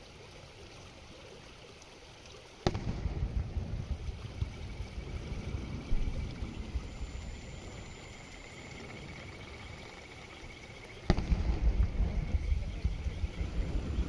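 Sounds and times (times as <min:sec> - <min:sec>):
firework bang: 0:02.6 - 0:04.1, 0:11.1 - 0:13.0
faint high trill: 0:04.9 - 0:11.0
low rumble: 0:11.1 - 0:14.0.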